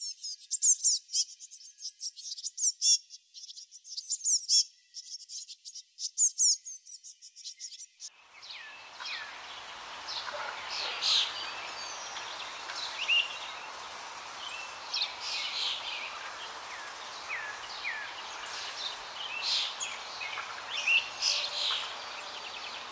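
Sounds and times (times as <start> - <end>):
small birds twittering: 0.0 - 22.9
outdoor background hiss: 8.1 - 22.9.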